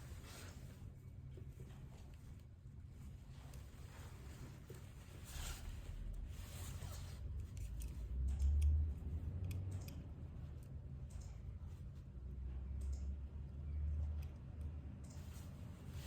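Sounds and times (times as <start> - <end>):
small clicks: 7.4 - 11.7, 12.7 - 15.6.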